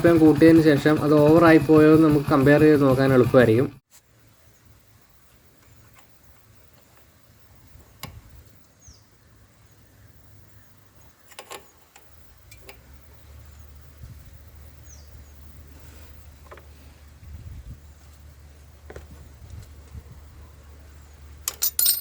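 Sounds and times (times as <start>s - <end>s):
motorcycle engine idling: 0.0s - 3.8s
bird chirping: 8.8s - 11.9s, 14.8s - 15.5s.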